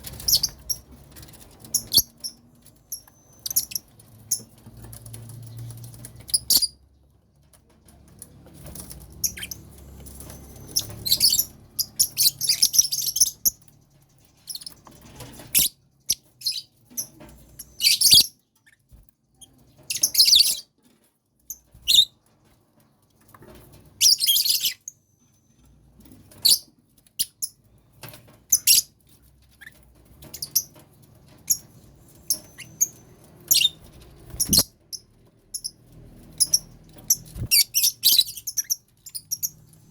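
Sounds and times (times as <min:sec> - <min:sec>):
lovebirds chirping shrilly: 0:10.2 - 0:13.6, 0:32.2 - 0:35.7, 0:36.4 - 0:39.6.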